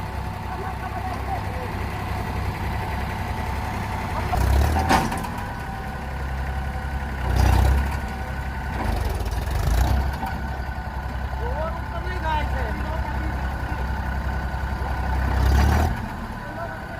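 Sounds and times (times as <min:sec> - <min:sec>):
tractor engine rumbling: 0:00.0 - 0:16.9.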